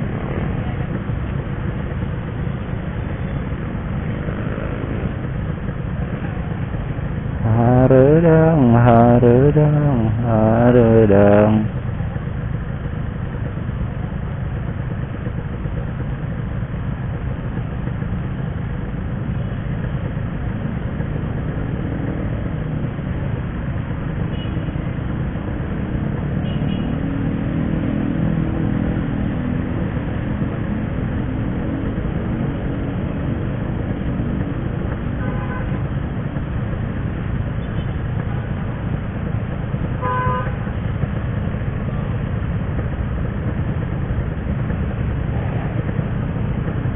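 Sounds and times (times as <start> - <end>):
motorcycle engine: 0.0 - 46.9
vehicle horn tooting: 24.3 - 24.7, 35.2 - 35.9, 40.0 - 40.6.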